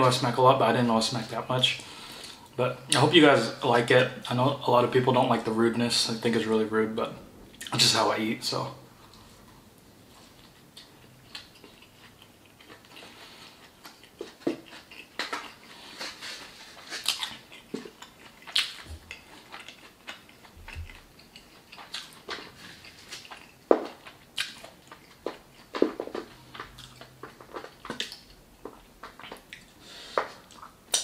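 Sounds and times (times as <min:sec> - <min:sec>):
person chewing wetly: 0:09.0 - 0:31.0.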